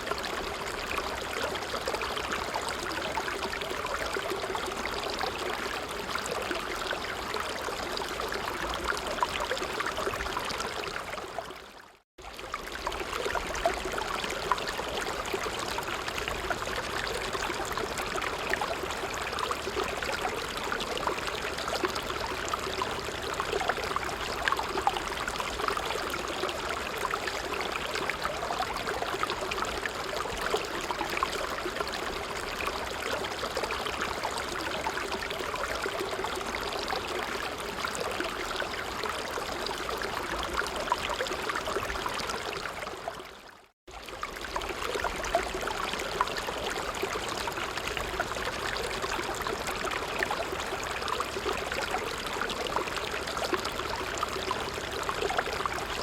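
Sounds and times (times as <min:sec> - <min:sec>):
stream babbling: 0:44.0 - 0:56.0.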